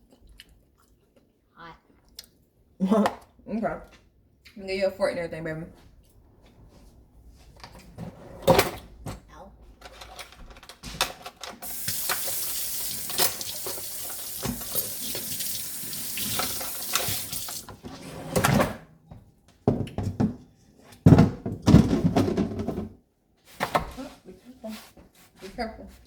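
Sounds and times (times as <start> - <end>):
tap running into sink: 11.6 - 17.8.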